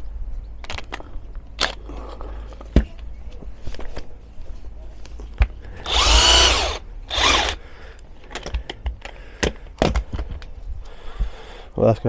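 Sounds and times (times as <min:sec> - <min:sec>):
power tool spinning nut: 0:01.6 - 0:01.8, 0:05.8 - 0:07.6.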